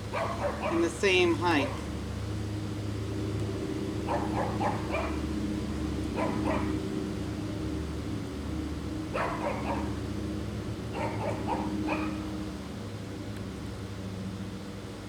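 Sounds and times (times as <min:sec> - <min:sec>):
steady low hum: 0:00.0 - 0:15.0
animal calls: 0:00.1 - 0:01.9, 0:06.1 - 0:06.8.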